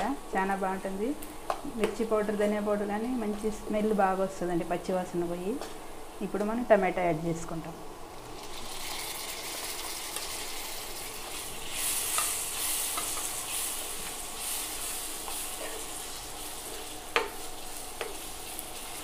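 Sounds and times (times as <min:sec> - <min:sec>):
tomatoes sizzling in hot oil: 0:08.1 - 0:19.0.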